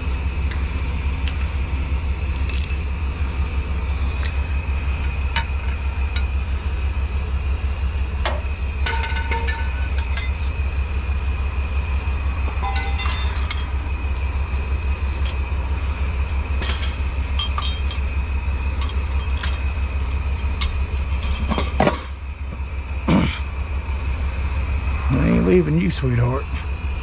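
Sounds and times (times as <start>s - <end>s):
truck engine drone: 0.0s - 27.0s
metallic clinks and rattles: 2.4s - 2.9s, 8.8s - 10.5s, 12.6s - 13.9s, 16.4s - 22.2s.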